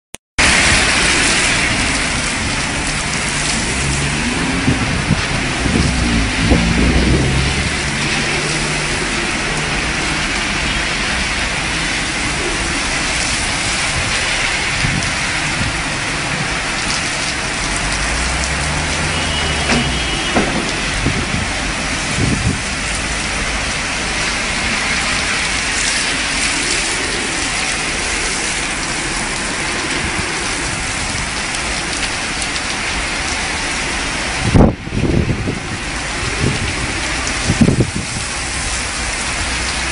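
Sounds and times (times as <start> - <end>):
torrential rain hissing: 0.4 - 39.9
loud thumps: 19.6 - 21.6.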